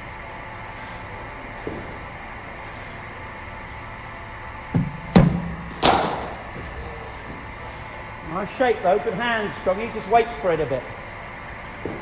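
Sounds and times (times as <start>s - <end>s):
indoor hall hum: 0.0s - 12.0s
cricket bat hitting ball: 5.1s - 6.6s.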